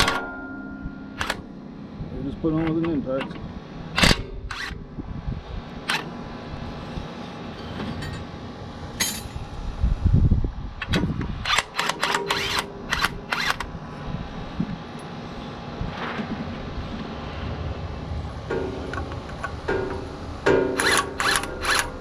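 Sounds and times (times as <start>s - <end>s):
impact wrench bursts: 11.4s - 13.7s, 19.7s - 22.0s.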